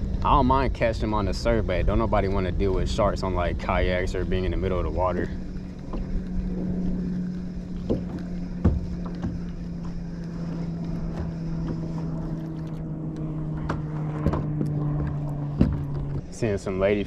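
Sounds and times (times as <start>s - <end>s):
motorboat engine droning: 0.0s - 17.0s
light knocks and clicks: 7.8s - 16.3s.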